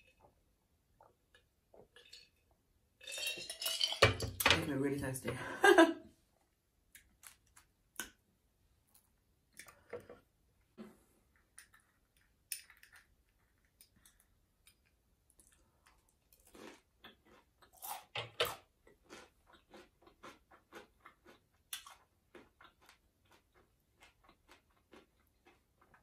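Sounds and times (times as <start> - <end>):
wet chewing of noodles: 15.3 - 26.0.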